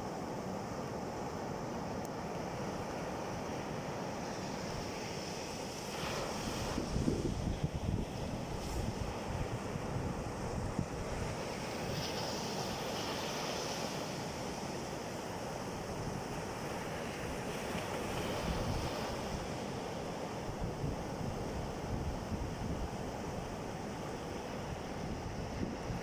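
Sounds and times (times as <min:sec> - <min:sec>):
sea waves washing in: 0:02.3 - 0:26.0
wind buffeting microphone: 0:06.6 - 0:12.0, 0:24.6 - 0:26.0.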